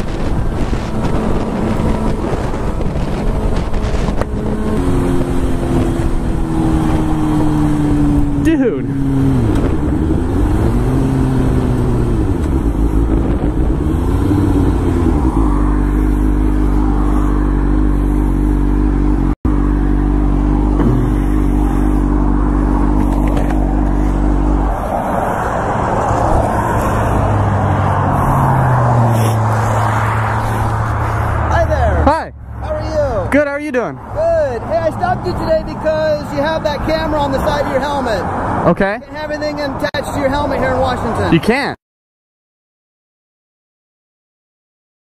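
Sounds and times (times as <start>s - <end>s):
motorcycle engine revving: 0.0s - 32.6s.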